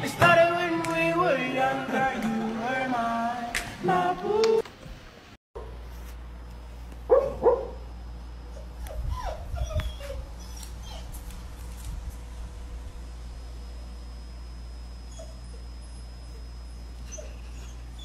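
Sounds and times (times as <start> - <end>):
dog barking: 7.1 - 7.8
dog whimpering: 8.5 - 11.2, 15.0 - 18.0.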